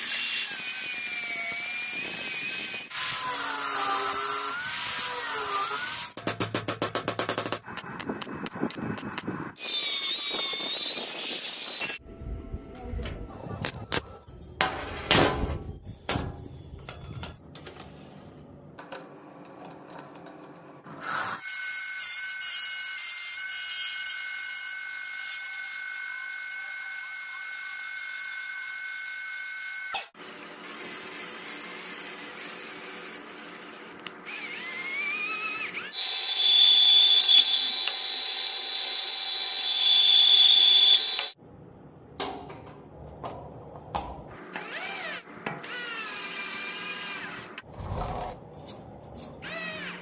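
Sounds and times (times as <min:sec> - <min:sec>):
electric power tool whining: 0:34.2 - 0:41.4.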